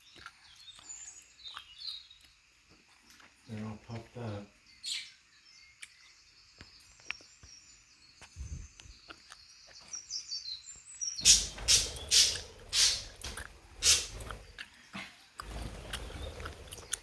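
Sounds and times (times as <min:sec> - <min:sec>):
harsh scratchy bursts: 0:11.2 - 0:14.5
budgerigars chattering: 0:11.2 - 0:14.6, 0:15.4 - 0:17.0.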